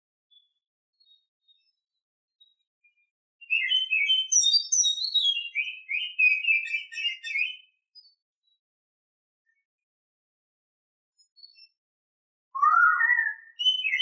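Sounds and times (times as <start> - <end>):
bird singing whistled notes: 0.3 - 8.6, 12.6 - 14.0.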